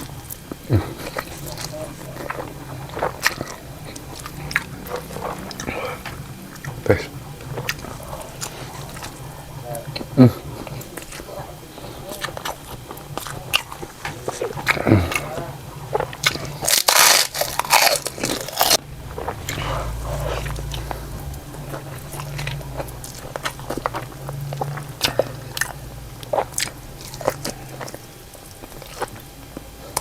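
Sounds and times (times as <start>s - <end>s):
person chewing: 0.0s - 30.0s
crunchy bite: 12.1s - 30.0s.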